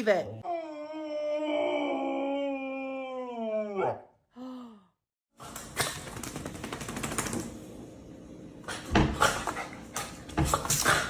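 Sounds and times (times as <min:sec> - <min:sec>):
dog scrabbling with clicks: 0:05.4 - 0:07.7.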